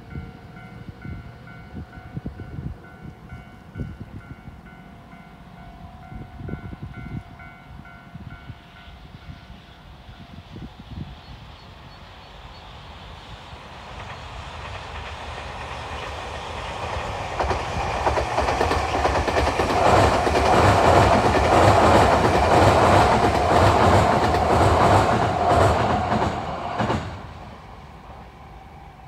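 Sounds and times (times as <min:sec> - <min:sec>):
electric train passing: 0:00.0 - 0:29.0
wheels clacking over rail joints: 0:13.7 - 0:27.5.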